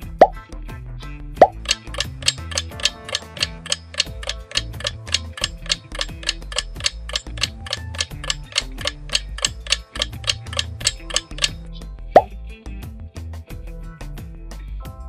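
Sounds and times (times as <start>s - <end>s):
bass line: 0.0s - 0.4s
clock-like ticking: 1.4s - 11.6s.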